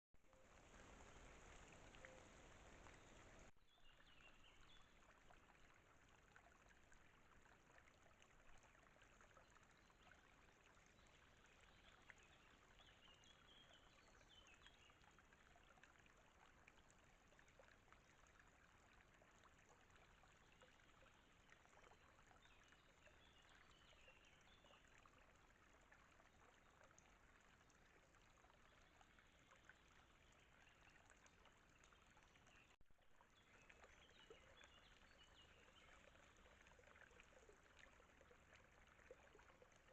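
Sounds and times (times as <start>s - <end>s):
faint microphone hiss: 0.3s - 4.6s.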